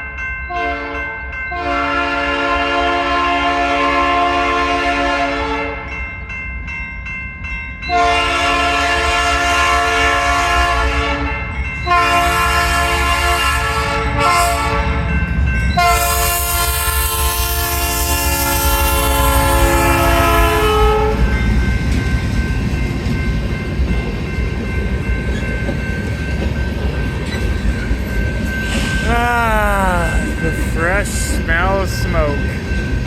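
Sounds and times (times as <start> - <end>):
passing train rumble: 0.0 - 33.0
locomotive air horn: 1.6 - 5.8, 7.9 - 15.0, 15.8 - 21.3.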